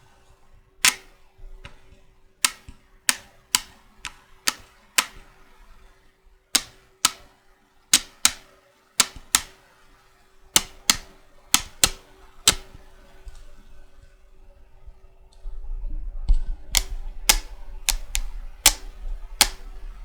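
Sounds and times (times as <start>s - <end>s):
checkers pieces clicking: 0.8s - 1.2s, 2.4s - 5.3s, 6.6s - 7.3s, 7.9s - 9.6s, 10.6s - 12.7s, 16.8s - 19.8s.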